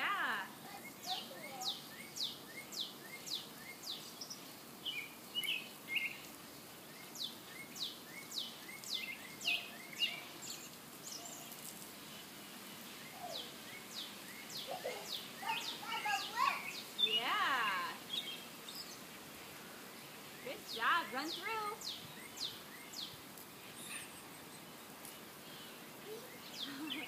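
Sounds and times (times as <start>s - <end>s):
faint outdoor hiss: 0.0s - 27.0s
songbird singing high notes: 7.0s - 11.5s.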